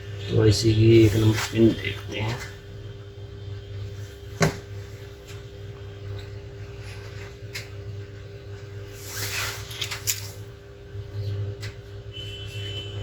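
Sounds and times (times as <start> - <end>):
low electrical hum: 0.0 - 13.0
short scrape: 9.0 - 9.9.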